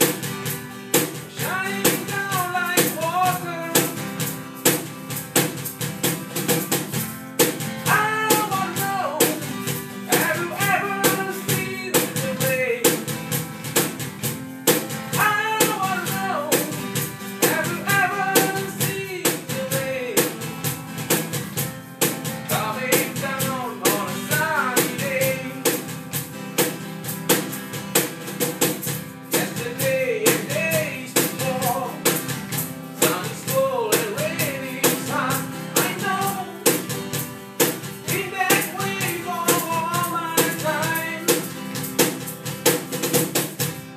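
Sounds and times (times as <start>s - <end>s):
drum kit beat: 0.0s - 43.9s
guitar: 0.0s - 43.9s
person singing: 1.3s - 4.0s, 7.8s - 13.1s, 15.1s - 20.4s, 22.5s - 25.8s, 29.3s - 32.2s, 33.0s - 36.9s, 38.0s - 41.6s.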